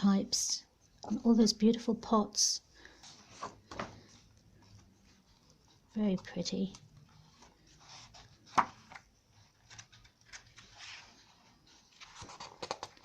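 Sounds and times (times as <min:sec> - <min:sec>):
heavy paper pages turning: 0:03.1 - 0:13.0.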